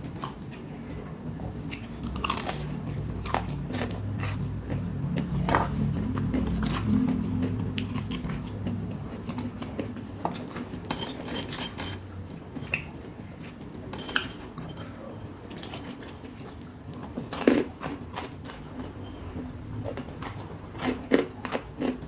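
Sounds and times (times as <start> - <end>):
eating crunchy snacks: 1.6 - 19.0, 19.8 - 22.0
clinks of food and plate: 13.9 - 15.0.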